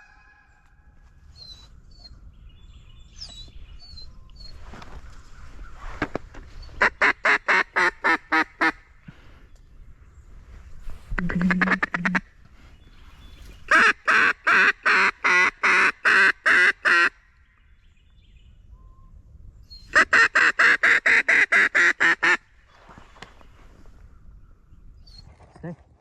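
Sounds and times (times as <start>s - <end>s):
duck call quacks: 11.2s - 12.2s, 13.7s - 17.2s, 20.0s - 22.4s.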